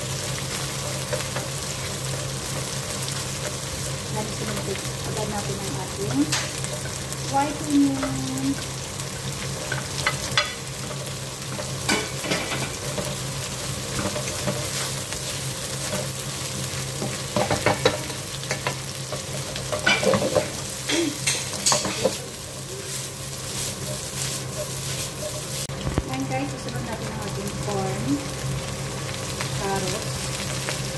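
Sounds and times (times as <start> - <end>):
onion sizzling in a pan: 0.0 - 30.9
utensil scraping a pan: 17.0 - 25.7.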